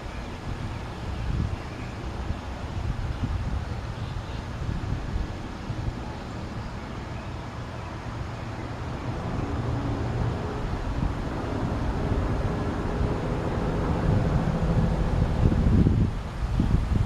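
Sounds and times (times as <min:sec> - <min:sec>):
wind buffeting microphone: 0:00.0 - 0:06.8, 0:08.2 - 0:17.0.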